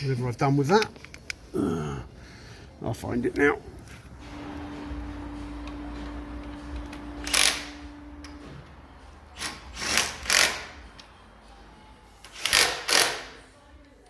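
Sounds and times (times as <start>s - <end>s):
handheld power tool running: 4.2s - 8.4s.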